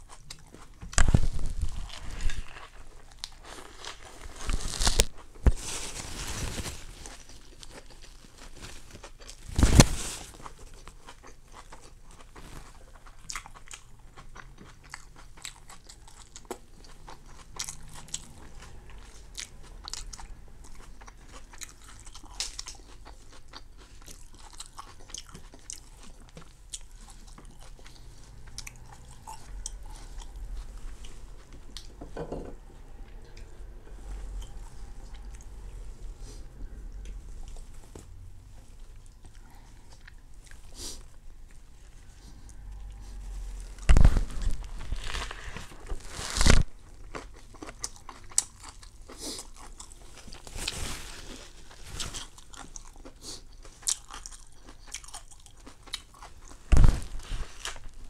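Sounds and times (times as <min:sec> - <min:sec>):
crunchy biting and chewing: 0:07.0 - 0:31.9, 0:39.0 - 0:50.6, 0:51.4 - 0:58.0.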